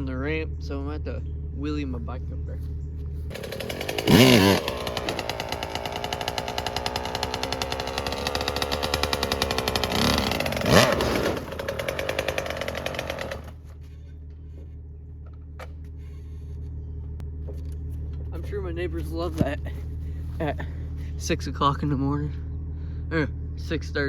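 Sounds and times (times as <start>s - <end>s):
dirt bike engine revving: 3.3s - 13.6s.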